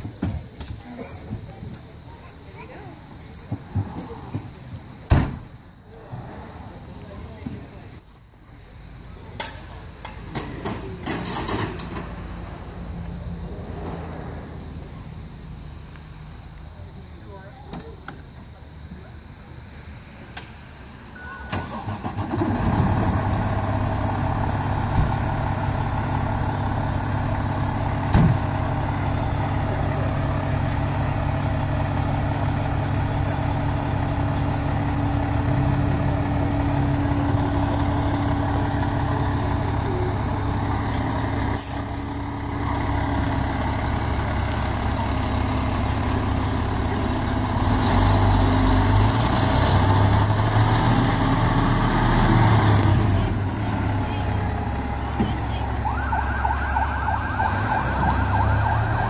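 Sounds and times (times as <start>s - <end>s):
diesel engine starting and idling: 8.9s - 16.3s, 21.2s - 59.0s.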